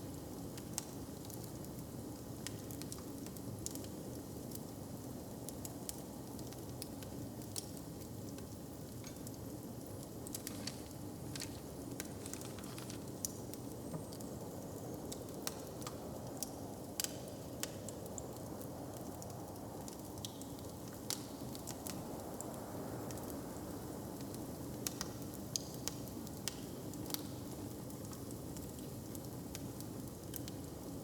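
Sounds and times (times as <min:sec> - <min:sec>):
log fire crackling and popping: 0:05.4 - 0:22.1.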